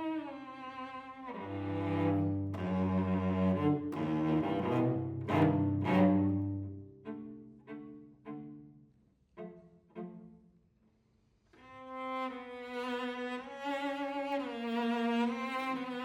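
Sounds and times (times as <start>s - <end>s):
bowed cello melody: 0.0s - 10.7s, 11.5s - 16.0s
plucked cello chords: 1.5s - 8.8s.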